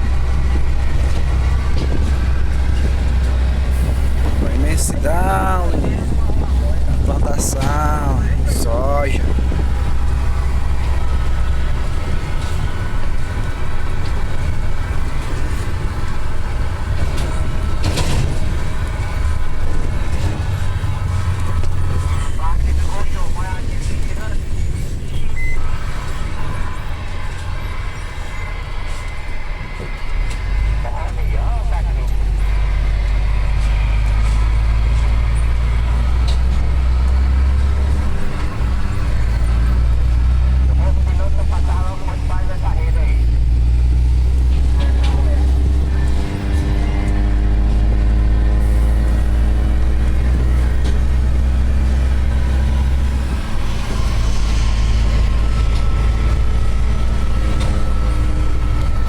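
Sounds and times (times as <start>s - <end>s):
vehicle driving on road: 0.0s - 59.0s.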